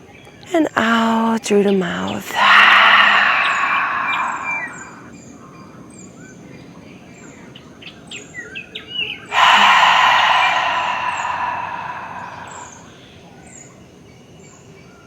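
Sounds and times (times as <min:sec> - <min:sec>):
birds chirping: 0:01.7 - 0:05.1, 0:09.3 - 0:12.9
deep breath blown out: 0:02.3 - 0:05.1, 0:09.3 - 0:12.9.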